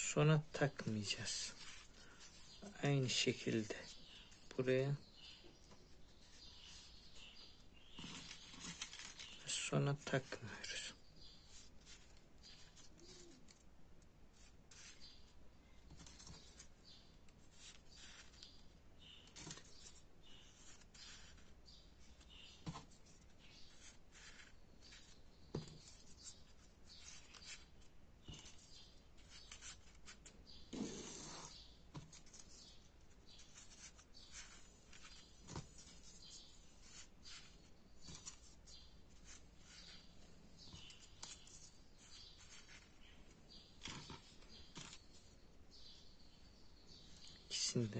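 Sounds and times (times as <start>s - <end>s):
paper rustling: 5.6s - 13.7s, 17.4s - 45.4s.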